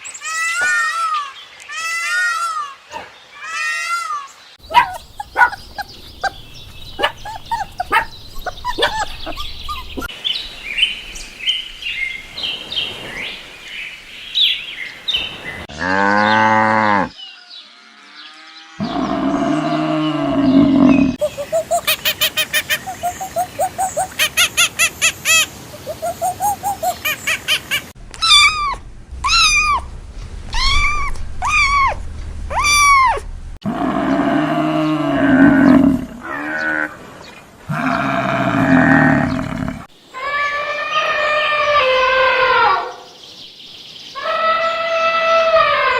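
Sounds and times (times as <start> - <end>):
longer pitched animal calls: 3.4 - 10.1, 18.3 - 27.0, 28.2 - 29.9, 30.5 - 36.9
rising and falling animal calls: 3.4 - 10.2, 18.0 - 36.9
rapid pulsing animal trill: 4.6 - 10.1.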